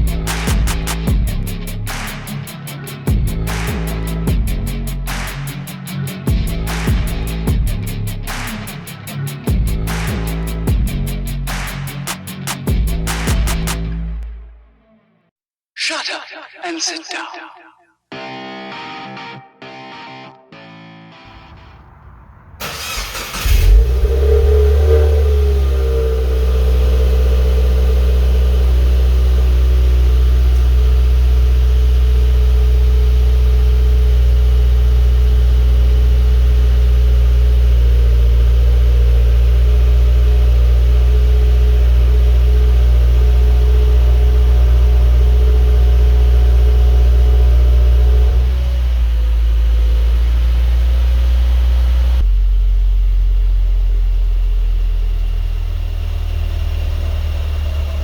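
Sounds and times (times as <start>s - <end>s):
car engine starting and idling: 21.3s - 58.0s.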